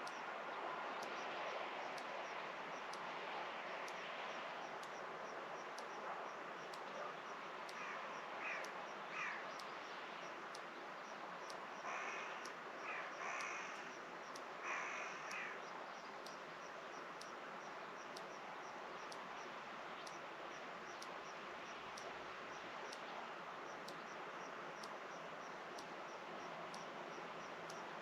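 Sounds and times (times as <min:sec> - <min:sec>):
steady outdoor hiss: 0:00.0 - 0:28.0
crows cawing: 0:07.8 - 0:09.4, 0:11.9 - 0:13.8, 0:14.6 - 0:15.6.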